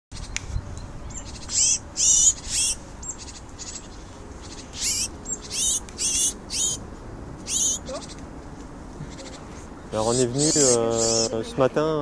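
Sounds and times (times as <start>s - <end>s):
faint high bird calls: 1.0s - 6.8s, 7.4s - 8.2s, 9.0s - 11.6s
small bird harsh calls: 1.0s - 8.3s, 9.0s - 11.6s.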